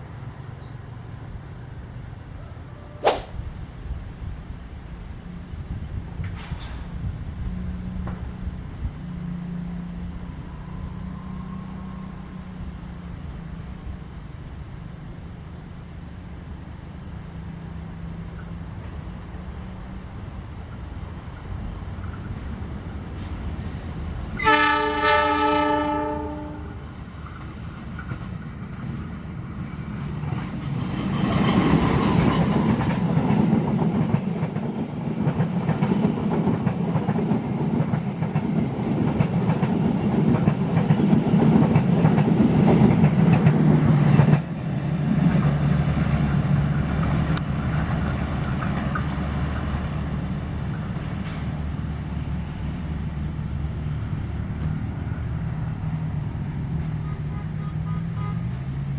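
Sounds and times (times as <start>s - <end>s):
train passing with rumble: 0.0s - 58.9s
train horn blowing: 24.3s - 27.0s, 56.9s - 58.7s.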